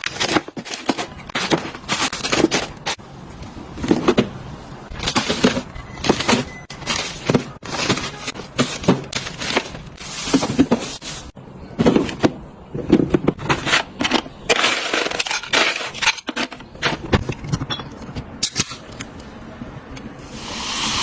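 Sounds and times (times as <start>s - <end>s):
food packaging crinkling: 5.0s - 11.4s.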